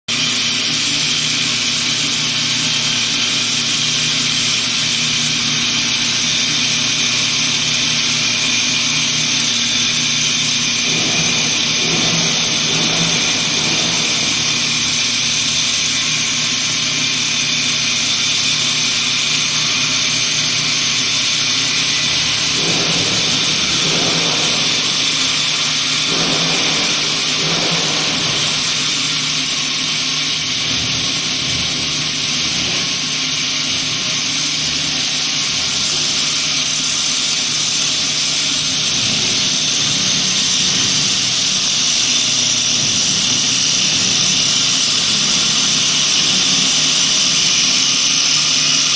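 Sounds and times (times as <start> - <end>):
wood lathe humming and hissing: 0.1 - 48.9
lathe cutting wood: 0.2 - 48.9.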